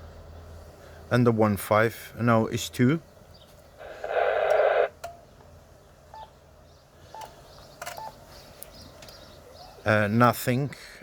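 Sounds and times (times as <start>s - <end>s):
receiver hiss: 3.8s - 5.1s.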